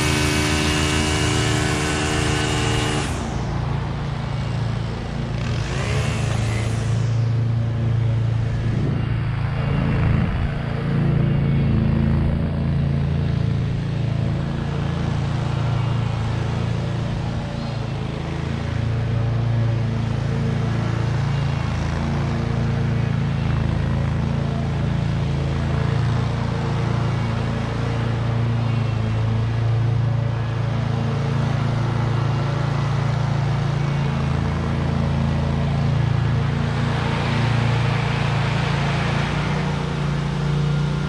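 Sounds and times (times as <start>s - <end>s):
lawn mower engine running: 0.0s - 41.0s.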